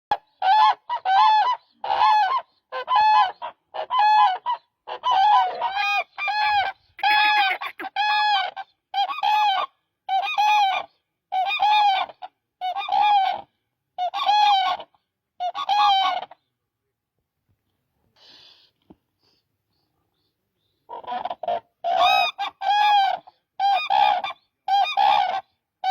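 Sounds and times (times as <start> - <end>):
crane honking calls: 6.3 - 7.9.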